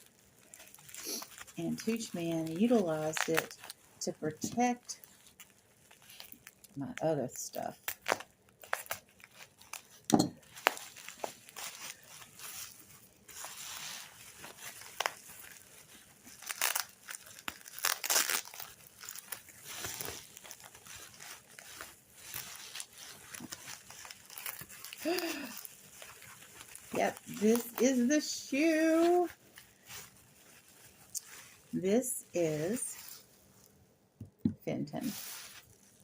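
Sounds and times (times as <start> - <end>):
packing paper crinkling: 0.0 - 33.7, 35.0 - 36.0.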